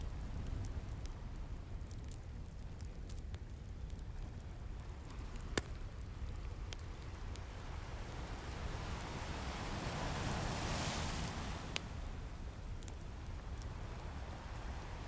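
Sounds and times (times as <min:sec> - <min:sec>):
wood fire crackling and popping: 0:00.4 - 0:07.6
ocean surf rumble: 0:07.5 - 0:15.0.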